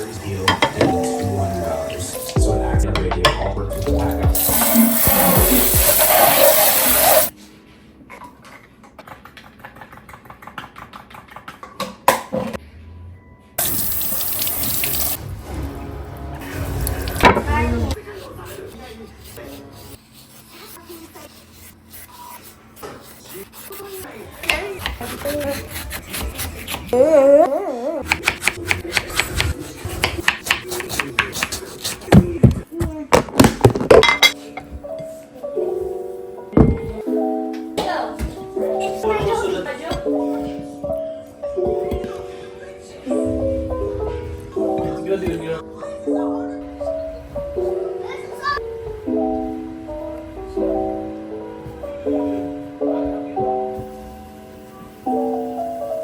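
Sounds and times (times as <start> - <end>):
kitchen tap running: 4.3 - 7.3, 13.6 - 15.2.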